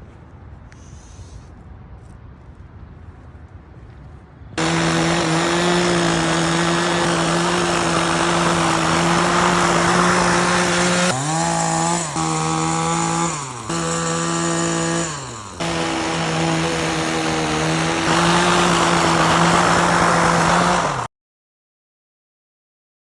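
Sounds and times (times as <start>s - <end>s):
two-stroke power sweeper engine: 4.6s - 21.1s.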